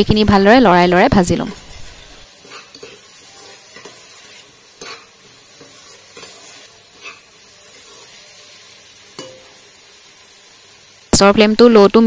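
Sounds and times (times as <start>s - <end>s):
lentils sizzling in a pot: 0.0s - 12.0s
spatula scraping a pot: 2.3s - 8.6s.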